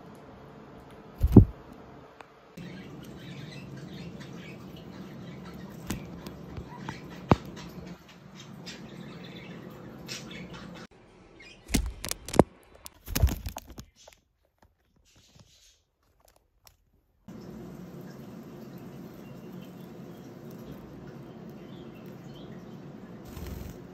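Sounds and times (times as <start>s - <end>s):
loud thumps: 1.2s - 1.6s.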